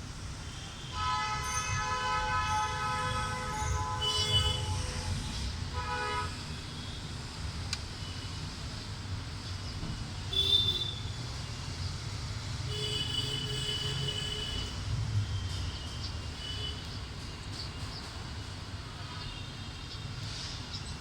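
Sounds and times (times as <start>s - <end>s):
low traffic rumble: 0.0s - 21.0s
horn-like tones: 0.9s - 6.4s.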